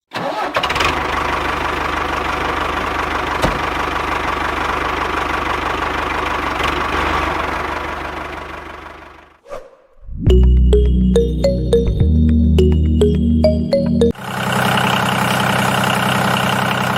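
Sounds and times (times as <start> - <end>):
engine idling with fast knocking: 0.7 - 9.3, 14.2 - 16.9.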